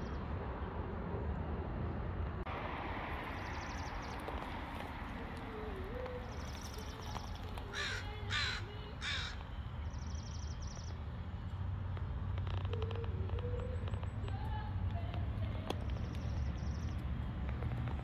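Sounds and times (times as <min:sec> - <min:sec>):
loud harsh bird calls: 0:05.8 - 0:10.9.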